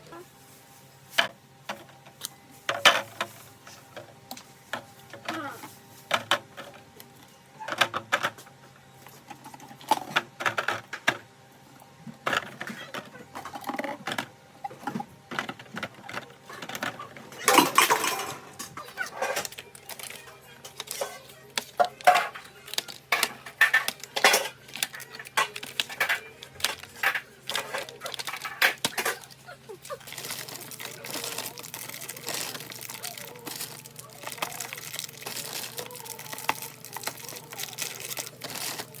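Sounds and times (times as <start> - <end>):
refrigerator hum: 0.0 - 39.0
jars and bottles clinking: 15.8 - 39.0.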